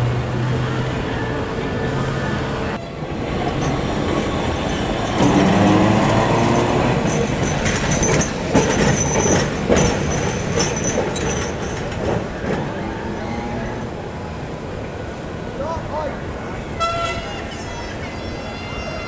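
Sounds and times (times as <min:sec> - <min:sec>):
wheels clicking over rails: 0:00.0 - 0:15.3
tram motor whine: 0:00.0 - 0:15.6
thin high wheel squeal: 0:01.1 - 0:14.0.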